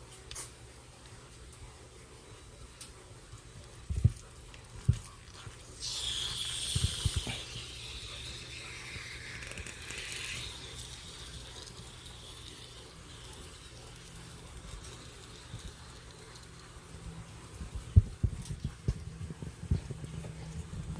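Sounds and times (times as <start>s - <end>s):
pressurised gas hissing: 5.8s - 13.7s.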